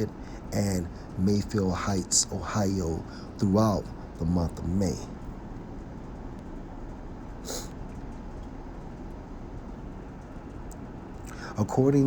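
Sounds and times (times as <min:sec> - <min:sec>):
brief hiss: 0:07.5 - 0:07.8.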